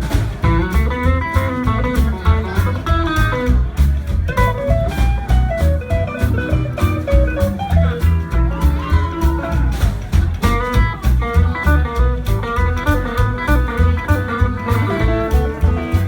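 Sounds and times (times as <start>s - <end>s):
live band playing boogie: 0.0s - 16.0s
electric guitar lead: 4.3s - 9.8s, 10.4s - 16.0s.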